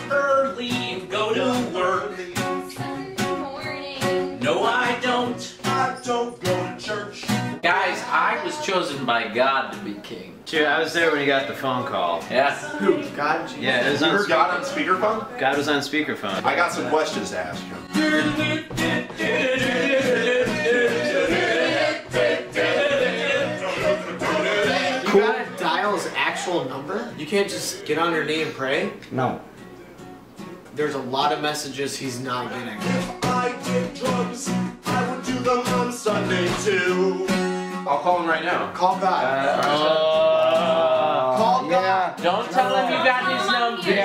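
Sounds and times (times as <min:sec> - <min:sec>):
person singing: 0:00.0 - 0:09.4, 0:12.2 - 0:15.6, 0:16.8 - 0:25.6, 0:32.2 - 0:37.9, 0:39.4 - 0:41.6
strummed acoustic guitar: 0:00.0 - 0:10.1, 0:10.8 - 0:44.0.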